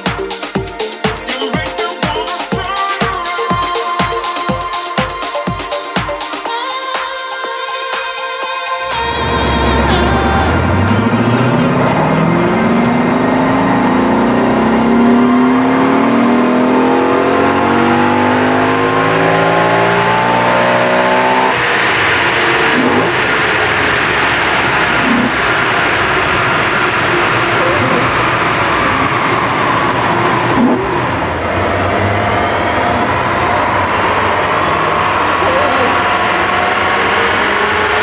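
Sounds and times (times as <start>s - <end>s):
loud steady rushing noise: 8.2s - 38.0s
car engine at full throttle: 8.8s - 38.0s.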